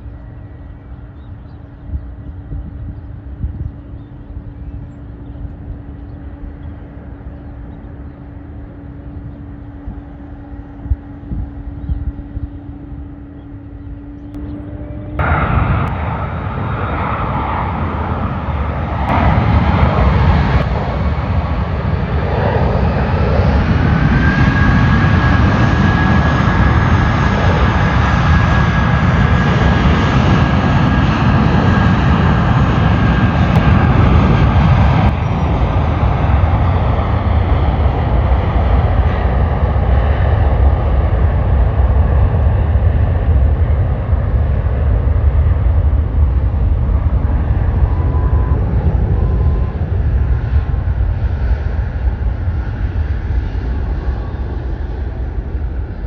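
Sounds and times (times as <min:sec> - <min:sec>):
steady hum: 0:00.0 - 0:38.1
jet engines rumbling and whining: 0:00.0 - 0:56.0.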